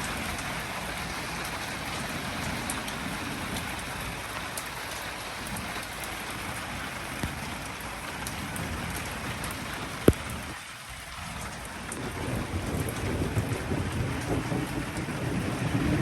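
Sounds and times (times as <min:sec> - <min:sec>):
heavy rain on hard surfaces: 0:00.0 - 0:16.0.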